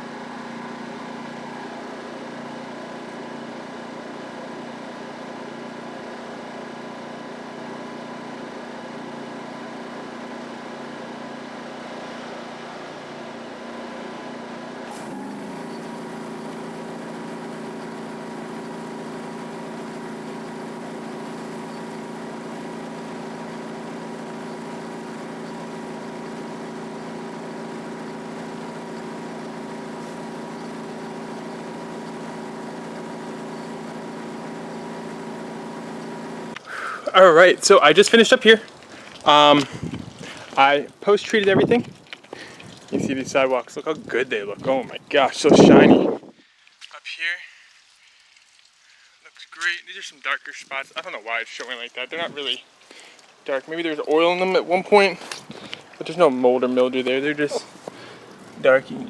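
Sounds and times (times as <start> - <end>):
pressure washer engine running: 14.9 - 41.7, 53.8 - 59.0.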